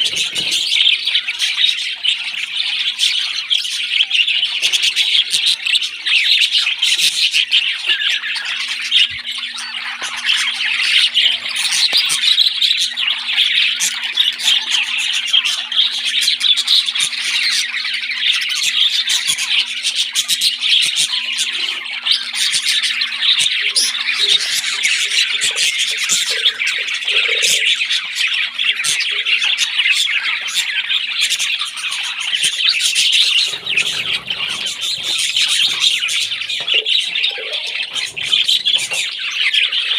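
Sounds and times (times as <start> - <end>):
parrot chicks squawking: 0.0 - 39.9.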